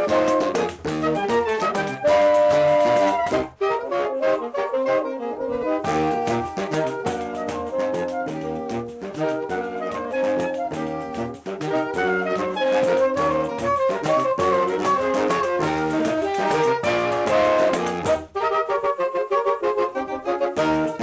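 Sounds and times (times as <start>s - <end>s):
steady percussion beat: 0.0s - 3.5s, 5.8s - 18.4s
saxophone quartet playing: 0.0s - 21.0s.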